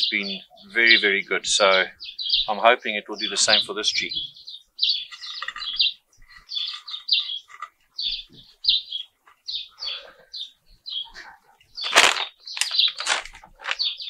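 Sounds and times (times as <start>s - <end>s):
bird chirping: 0.0s - 14.0s
plastic bag crinkling: 11.8s - 14.0s.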